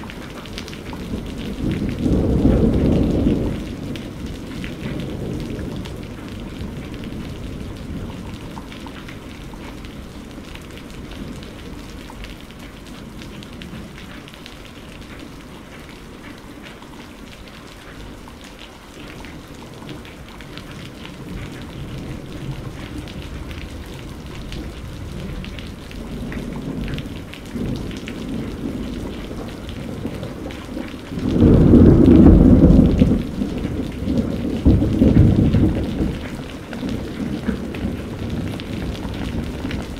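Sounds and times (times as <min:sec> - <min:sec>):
rain falling: 0:00.0 - 0:39.9
rolling thunder: 0:00.7 - 0:11.8, 0:21.1 - 0:39.9
thunder clap: 0:21.2 - 0:39.9.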